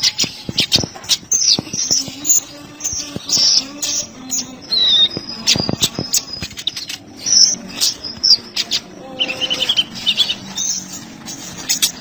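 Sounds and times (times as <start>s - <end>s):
sunbird chirping and trilling: 0.0s - 12.0s.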